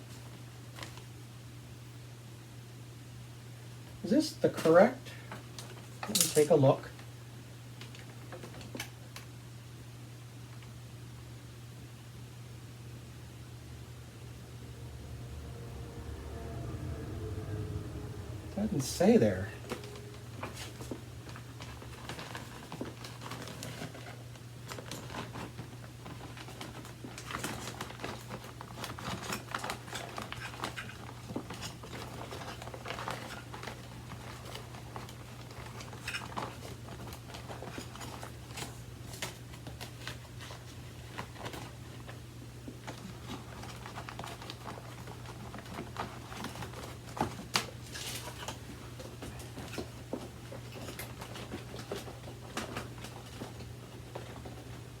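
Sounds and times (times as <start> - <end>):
steady low hum: 12.0 - 23.4.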